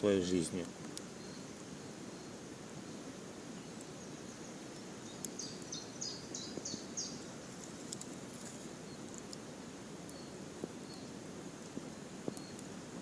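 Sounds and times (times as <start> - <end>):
campfire crackles: 0.0 - 13.0
small bird chirping: 0.9 - 9.4, 10.0 - 11.2, 12.2 - 12.9.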